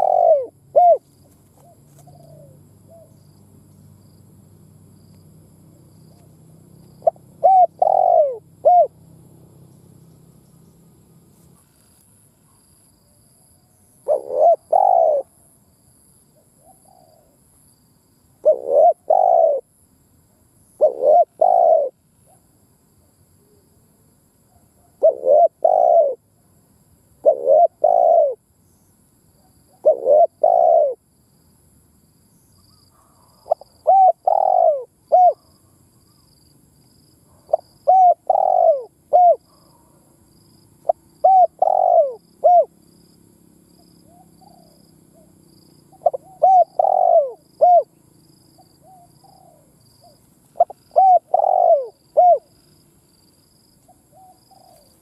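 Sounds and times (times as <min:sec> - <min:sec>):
dove cooing: 0:00.0 - 0:03.2, 0:06.1 - 0:09.0, 0:14.0 - 0:15.4, 0:16.6 - 0:17.4, 0:18.4 - 0:19.7, 0:20.8 - 0:22.4, 0:24.8 - 0:26.2, 0:27.2 - 0:28.4, 0:29.7 - 0:31.0, 0:32.9 - 0:36.2, 0:37.3 - 0:40.0, 0:40.8 - 0:42.8, 0:44.0 - 0:48.0, 0:48.6 - 0:52.7, 0:53.9 - 0:55.0.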